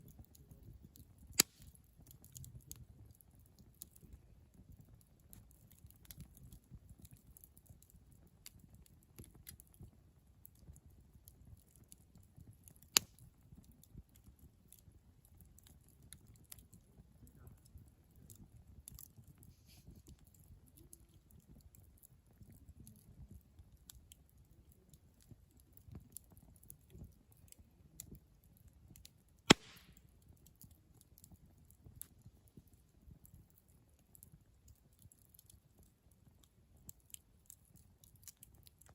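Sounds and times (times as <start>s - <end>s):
wood fire crackling: 0.0s - 38.9s
loud sharp pops: 29.5s - 29.9s.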